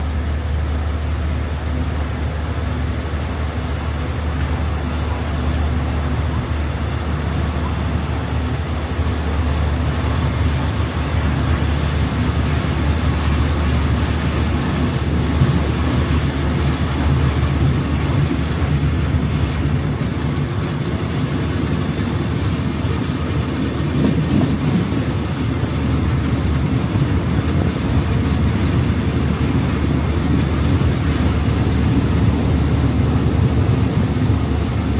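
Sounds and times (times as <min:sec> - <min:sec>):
train rumble and hum: 0:00.0 - 0:34.9.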